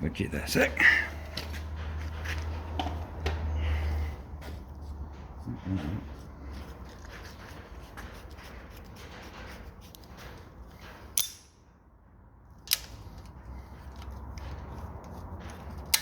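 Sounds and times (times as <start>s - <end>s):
metal clicks and scrapes: 12.6s - 16.0s.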